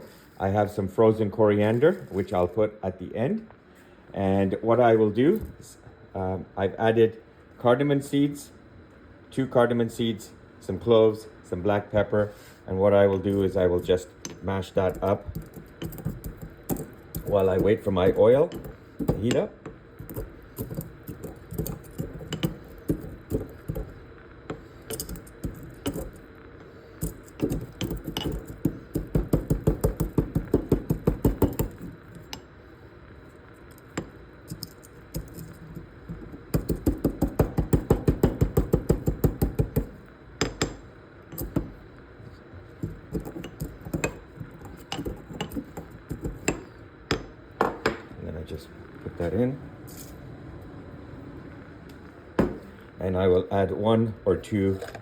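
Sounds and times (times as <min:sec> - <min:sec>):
spices pounded in mortar and pestle: 0:14.2 - 0:26.3, 0:27.0 - 0:32.5, 0:33.7 - 0:41.8, 0:42.8 - 0:48.0.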